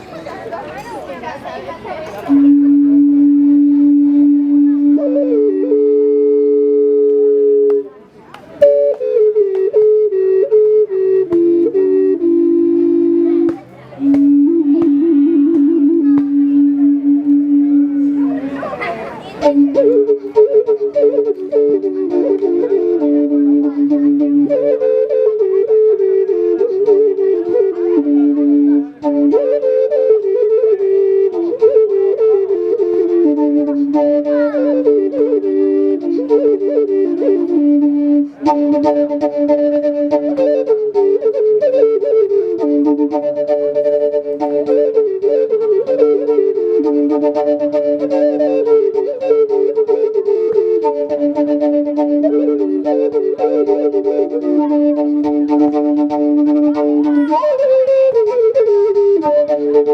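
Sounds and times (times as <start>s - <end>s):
flute-like melody: 0.0s - 59.9s
steady drone note: 12.2s - 18.8s.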